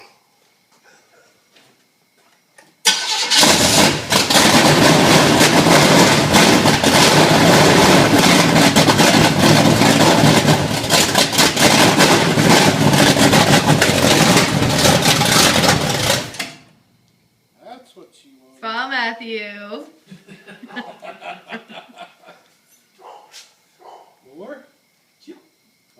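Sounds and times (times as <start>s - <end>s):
car engine starting and running: 2.8s - 16.6s.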